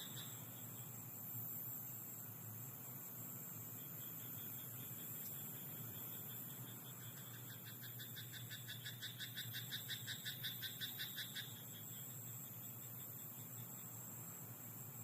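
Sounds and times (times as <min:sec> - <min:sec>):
low hum and hiss: 0:00.0 - 0:15.0
frog croaking: 0:06.0 - 0:11.9.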